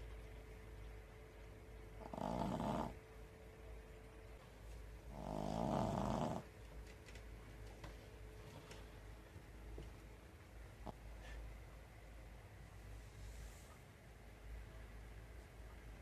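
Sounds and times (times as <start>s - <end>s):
dog snoring: 2.0s - 3.0s, 5.1s - 6.5s.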